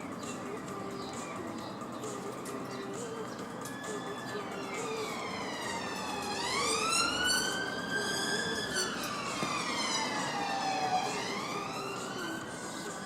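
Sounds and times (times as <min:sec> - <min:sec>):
siren wailing: 0:03.6 - 0:13.0.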